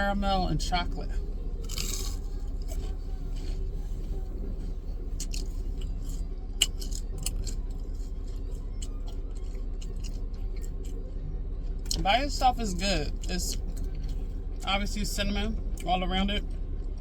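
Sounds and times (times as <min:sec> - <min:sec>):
steady low hum: 0:00.0 - 0:17.0
person chewing crunchy food: 0:01.1 - 0:11.1.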